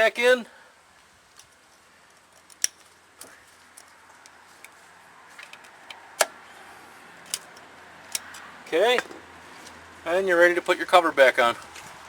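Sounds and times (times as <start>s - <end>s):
small metallic clicks: 2.3s - 4.8s, 7.2s - 9.1s.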